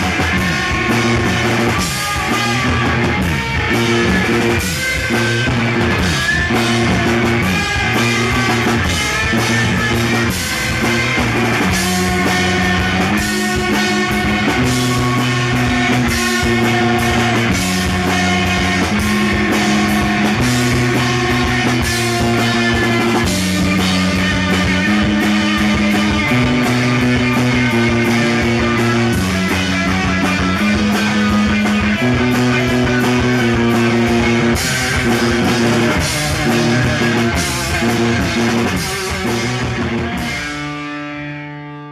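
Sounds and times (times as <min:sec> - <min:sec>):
drum kit beat: 0:00.0 - 0:40.9
electric guitar and bass riff: 0:00.0 - 0:41.9.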